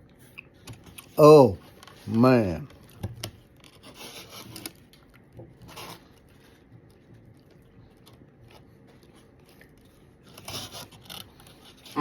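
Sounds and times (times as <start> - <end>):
quiet chewing: 2.7 - 12.0
rustling scrape: 3.7 - 4.8, 5.6 - 6.6, 10.2 - 12.0.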